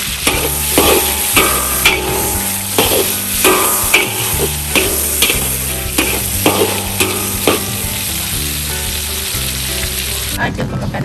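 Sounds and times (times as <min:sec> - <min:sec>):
spatula scraping a pan: 0:00.0 - 0:08.2
food sizzling in hot oil: 0:00.0 - 0:10.4.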